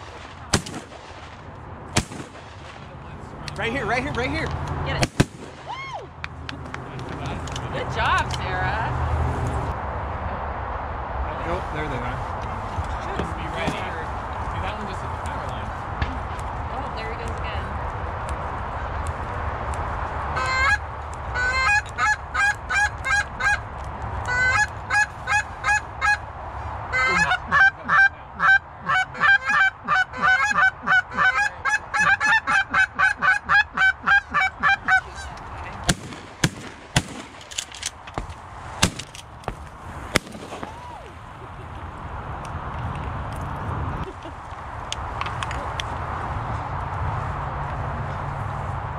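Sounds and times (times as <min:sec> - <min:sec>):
goose call honks and clucks: 0:20.4 - 0:26.2, 0:26.9 - 0:35.4.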